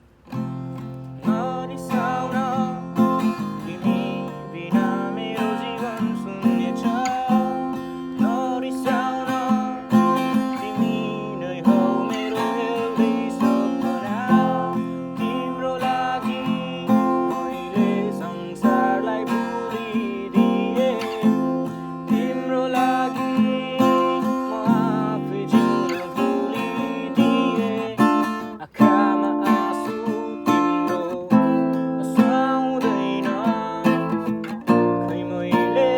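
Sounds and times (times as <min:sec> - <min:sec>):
acoustic guitar strumming: 0:00.0 - 0:35.9
person singing: 0:01.1 - 0:35.9.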